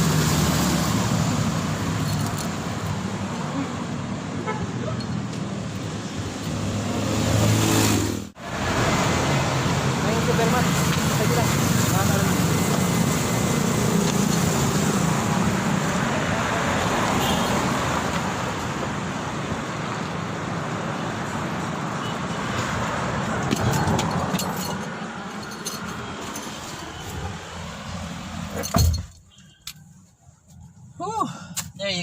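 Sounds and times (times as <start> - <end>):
street traffic: 0.0 - 32.0.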